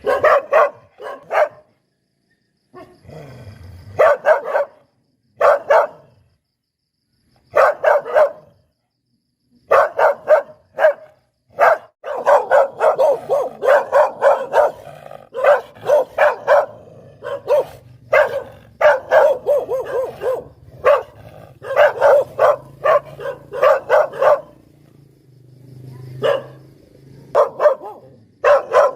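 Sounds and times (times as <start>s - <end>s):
dog barking: 0.0s - 1.8s, 2.7s - 3.0s, 3.9s - 6.1s, 7.5s - 8.7s, 9.6s - 24.7s, 26.0s - 26.7s, 27.3s - 28.9s.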